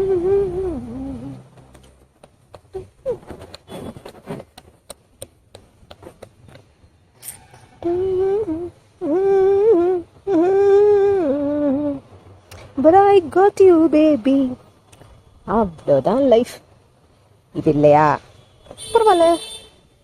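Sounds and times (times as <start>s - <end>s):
woman humming: 0.0s - 1.6s, 7.8s - 12.2s.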